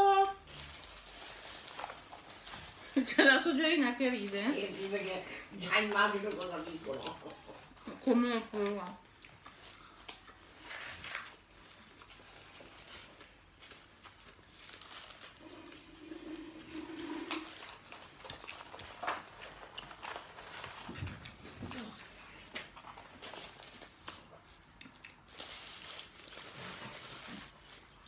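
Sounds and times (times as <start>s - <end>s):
paper wrapping rustling: 0.0s - 7.2s, 9.1s - 28.0s
person chewing: 9.0s - 12.5s, 15.6s - 22.4s, 23.2s - 25.7s.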